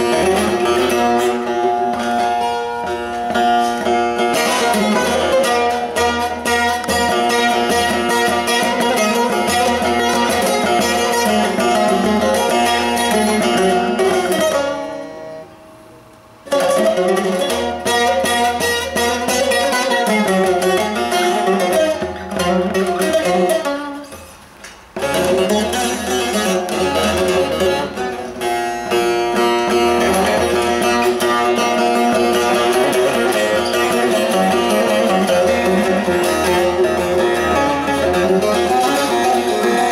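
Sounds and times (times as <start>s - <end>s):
strings ringing out: 0.0s - 15.6s, 25.0s - 39.9s
long-necked lute plucked: 0.0s - 39.9s.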